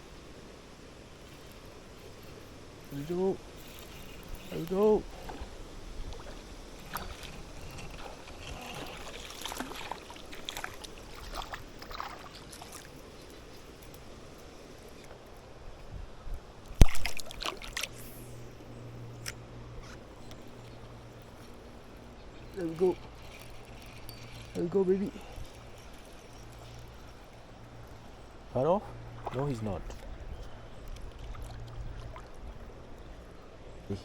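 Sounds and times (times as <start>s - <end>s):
low steady hum: 0.0s - 34.0s
river water sloshing: 0.0s - 34.0s
small splashes and clicks: 6.1s - 15.4s, 16.6s - 18.2s, 19.2s - 28.2s, 29.0s - 33.3s.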